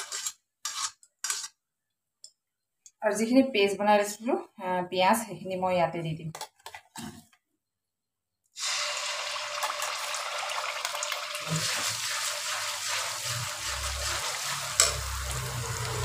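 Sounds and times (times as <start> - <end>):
metal spatula scraping: 0.0 - 1.6, 11.5 - 16.0
paste sizzling and crackling in fat: 8.6 - 16.0.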